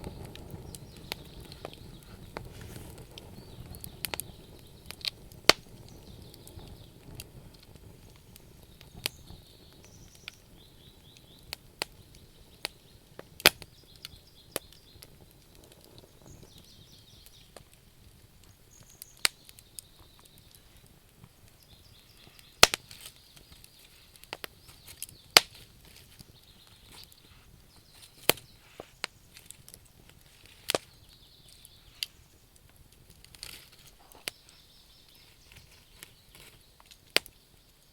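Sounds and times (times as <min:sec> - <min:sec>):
fire popping: 0:00.0 - 0:37.9
soft hiss: 0:00.0 - 0:37.9
wood fire crackling: 0:00.0 - 0:37.9.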